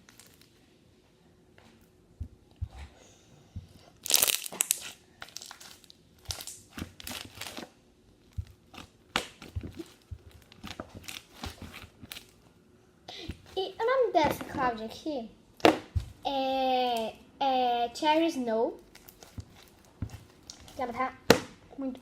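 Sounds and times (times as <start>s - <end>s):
slime being squished by hand: 4.0s - 12.4s.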